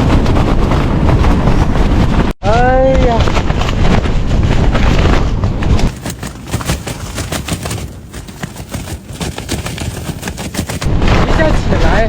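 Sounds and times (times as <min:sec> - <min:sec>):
wind buffeting microphone: 0:00.0 - 0:12.0
tent fabric flapping: 0:03.0 - 0:11.2.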